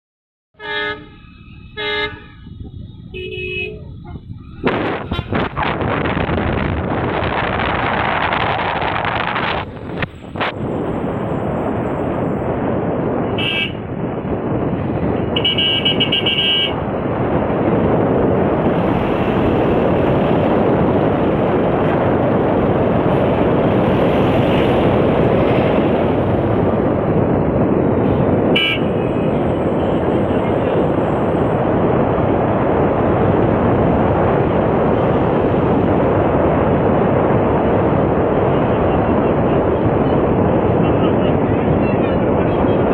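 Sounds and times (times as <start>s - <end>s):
horn sounding: 0.6s - 4.2s, 5.0s - 5.6s, 15.4s - 16.8s, 28.5s - 29.2s
moving vehicle: 0.6s - 42.9s
wind rushing: 1.2s - 42.9s.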